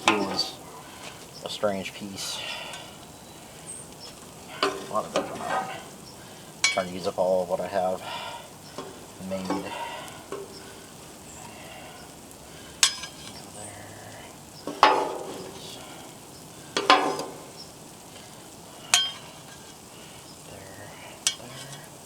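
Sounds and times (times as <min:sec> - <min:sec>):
utensil clanking on griddle: 0:00.0 - 0:01.2, 0:04.0 - 0:13.8, 0:14.6 - 0:20.2, 0:20.9 - 0:22.0
food sizzling on griddle: 0:00.0 - 0:22.0.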